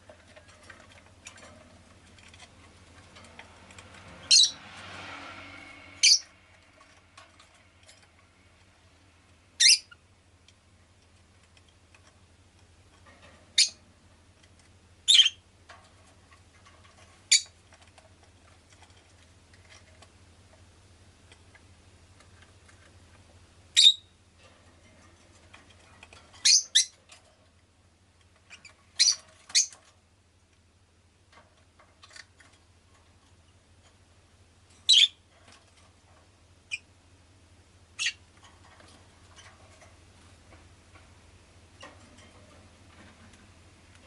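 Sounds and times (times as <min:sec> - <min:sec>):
faint steady low hum: 0:00.0 - 0:44.0
lovebird chirping: 0:04.3 - 0:04.6, 0:06.0 - 0:06.4, 0:09.6 - 0:10.0, 0:13.6 - 0:13.8, 0:15.1 - 0:15.4, 0:17.3 - 0:17.6, 0:23.8 - 0:24.2, 0:26.4 - 0:27.0, 0:28.6 - 0:29.8, 0:34.8 - 0:35.2, 0:38.0 - 0:38.2.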